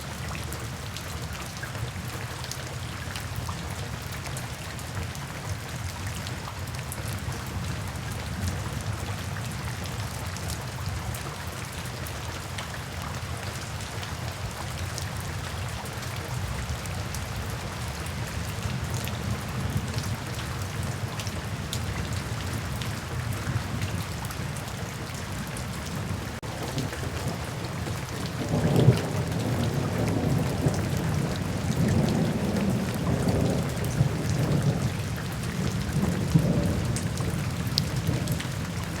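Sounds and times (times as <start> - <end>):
steady rain: 0.0 - 39.0
thunder rumbling: 26.1 - 39.0.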